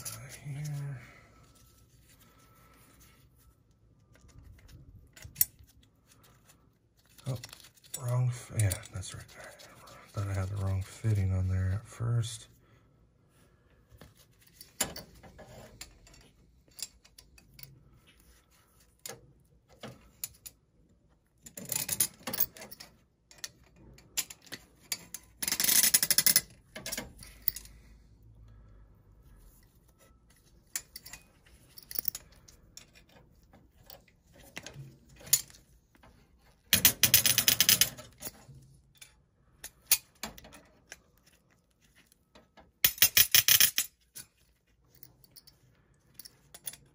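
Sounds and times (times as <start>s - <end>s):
metallic clicks and clinks: 21.5s - 27.8s, 42.8s - 44.3s, 44.9s - 46.9s.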